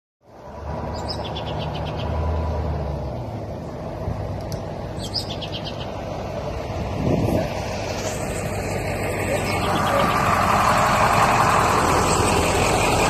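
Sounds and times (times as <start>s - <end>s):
songbird singing trills: 0.9s - 2.2s, 4.9s - 6.0s.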